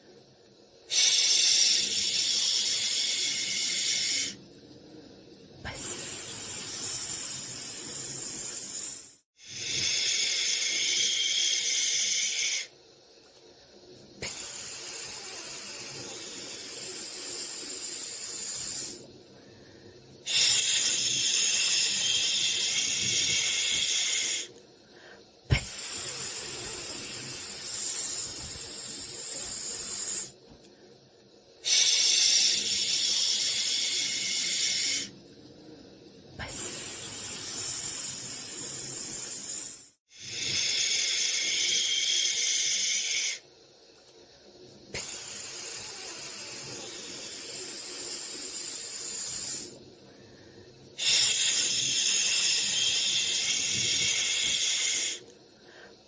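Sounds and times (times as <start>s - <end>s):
white noise shushing hiss: 20.2s - 30.4s, 44.3s - 50.3s, 50.9s - 56.0s.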